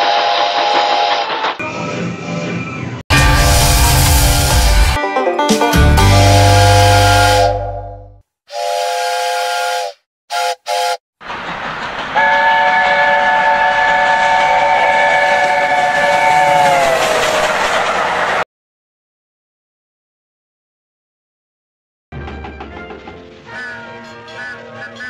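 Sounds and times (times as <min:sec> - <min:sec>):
train running noise: 0:00.0 - 0:05.0, 0:10.4 - 0:18.4, 0:22.2 - 0:25.0
steam locomotive chime whistle: 0:06.0 - 0:11.0, 0:12.2 - 0:17.0, 0:23.5 - 0:25.0.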